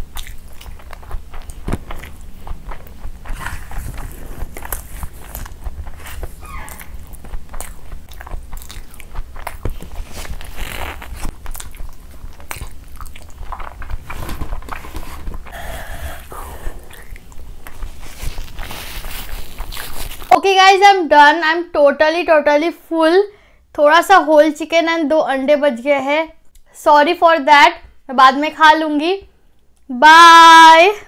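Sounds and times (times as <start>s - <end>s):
chewing with wet mouth clicks: 0.0s - 14.8s
fingers gathering rice: 17.7s - 20.3s.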